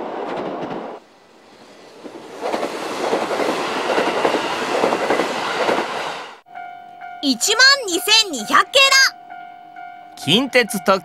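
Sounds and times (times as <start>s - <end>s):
train wheels rumbling and clicking: 0.0s - 1.0s, 1.9s - 6.2s.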